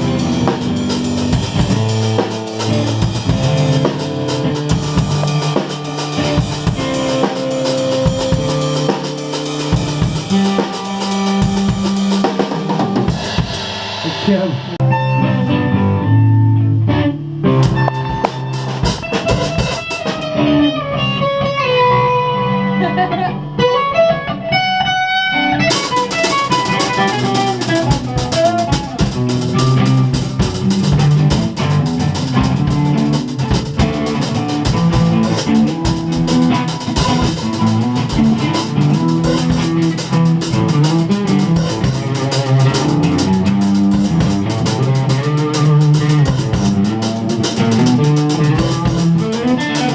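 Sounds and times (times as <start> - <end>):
drum hits: 0.0 - 15.0, 17.6 - 20.4, 25.7 - 49.9
rock band playing: 0.0 - 49.9
guitar single notes: 13.9 - 49.9.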